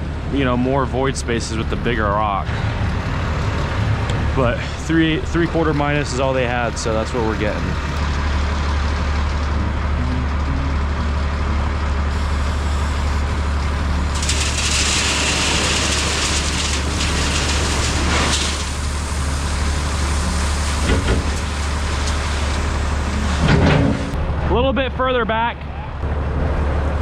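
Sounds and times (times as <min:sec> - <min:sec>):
vehicle engine rumbling: 0:00.0 - 0:27.0
loud hissing rush: 0:12.1 - 0:24.1.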